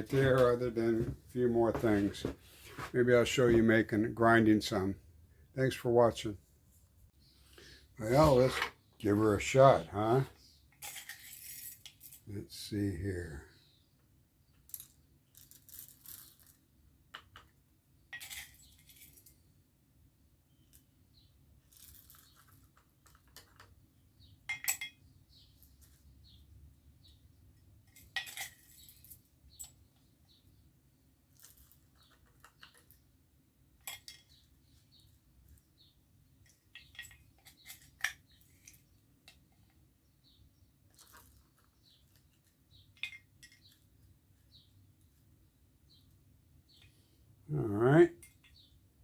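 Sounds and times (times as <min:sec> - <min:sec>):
clinks of small metal parts: 0:10.7 - 0:12.3, 0:14.5 - 0:17.5, 0:18.1 - 0:19.4, 0:21.7 - 0:23.7, 0:24.4 - 0:25.0, 0:27.6 - 0:29.8, 0:31.3 - 0:33.0, 0:33.8 - 0:34.5, 0:36.4 - 0:39.8, 0:40.9 - 0:44.1.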